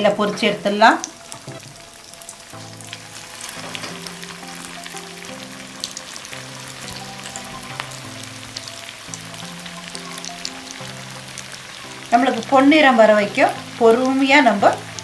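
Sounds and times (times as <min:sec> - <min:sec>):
cutlets sizzling in hot oil: 0:00.0 - 0:15.0
soft background music: 0:00.0 - 0:15.0.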